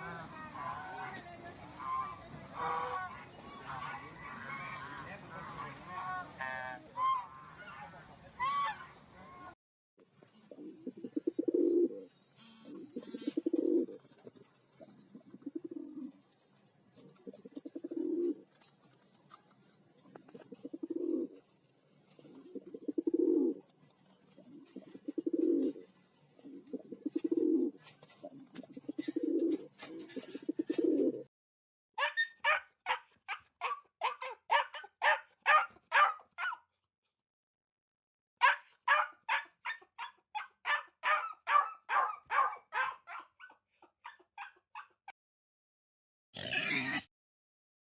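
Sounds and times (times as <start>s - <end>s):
pigeon cooing: 10.3s - 16.3s, 17.0s - 18.6s, 20.2s - 21.4s, 22.1s - 31.3s
dog barking: 32.0s - 36.6s, 38.4s - 44.9s.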